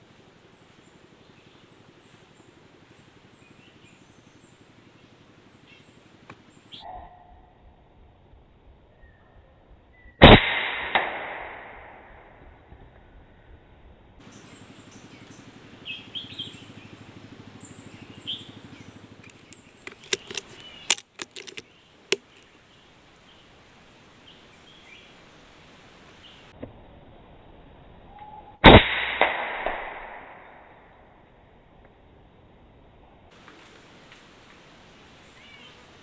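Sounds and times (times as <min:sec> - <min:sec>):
air rifle shot crack: 0:10.2 - 0:12.2, 0:28.6 - 0:30.8
quieter crack: 0:10.2 - 0:12.4, 0:19.2 - 0:22.4, 0:28.6 - 0:31.0
birds chirping: 0:14.3 - 0:25.3
rapid sharp clicks: 0:19.2 - 0:22.5.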